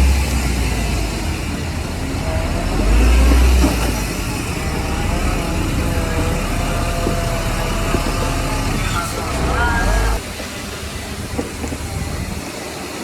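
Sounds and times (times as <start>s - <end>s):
heavy machinery diesel engine rumbling: 0.0s - 13.0s.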